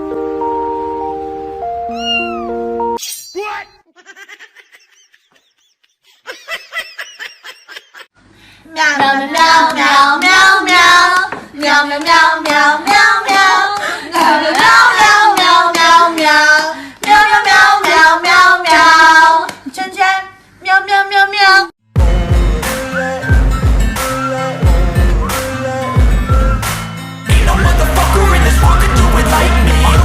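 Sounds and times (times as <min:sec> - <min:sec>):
high-pitched voice singing: 0:01.9 - 0:02.5
brief pitched calls: 0:01.9 - 0:03.9.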